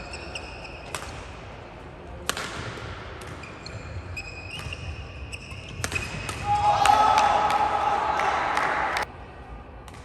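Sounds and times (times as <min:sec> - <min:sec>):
shoes squeaking on court floor: 0:00.0 - 0:01.1, 0:03.2 - 0:06.4
racket striking shuttlecock: 0:00.8 - 0:01.4, 0:02.2 - 0:03.4, 0:05.7 - 0:07.6.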